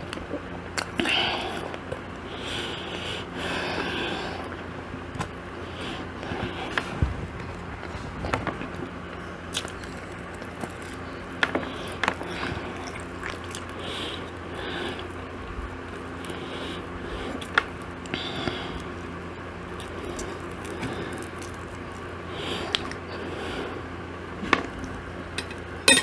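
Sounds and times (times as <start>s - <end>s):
steady low hum: 0.0s - 26.0s
chewing and mouth noises: 9.5s - 14.4s.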